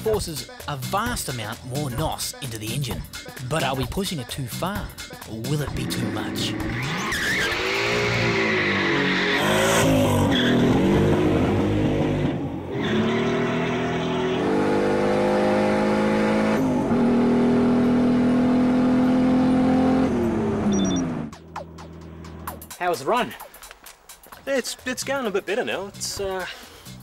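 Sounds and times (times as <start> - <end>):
car engine revving at full throttle: 5.8 - 22.5.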